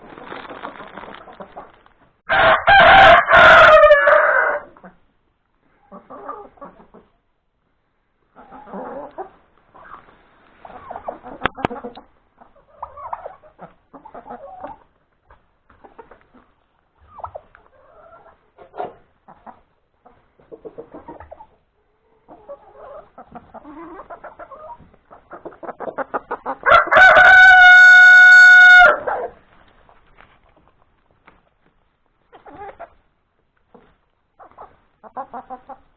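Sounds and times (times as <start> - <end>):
chickens clucking: 0.1 - 2.1, 3.7 - 35.9
rooster crowing: 2.3 - 4.7, 26.6 - 29.3.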